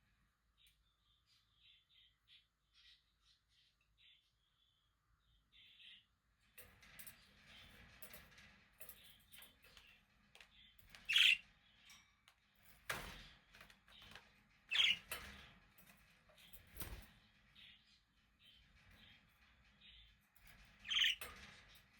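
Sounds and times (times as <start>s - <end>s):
budgerigars chirping and warbling: 11.1s - 11.4s, 14.7s - 15.1s, 20.9s - 21.3s.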